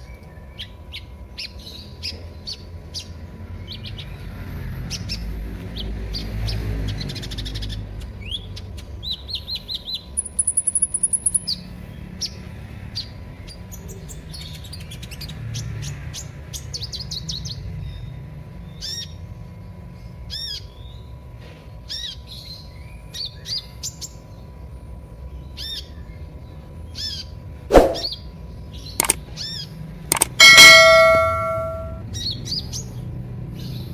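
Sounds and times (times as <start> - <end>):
bird chirping and trilling: 30.1 - 32.0.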